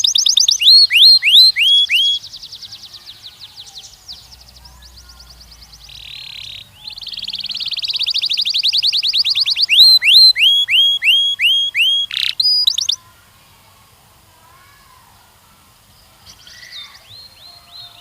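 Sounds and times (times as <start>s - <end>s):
canary singing: 0.0s - 13.0s.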